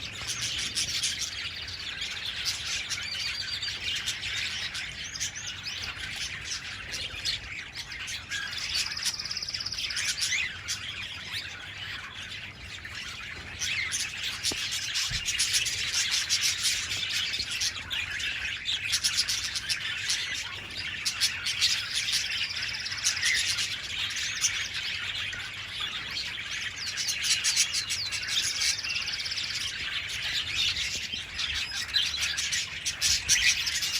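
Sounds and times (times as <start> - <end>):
budgerigars chattering: 0.0 - 33.9.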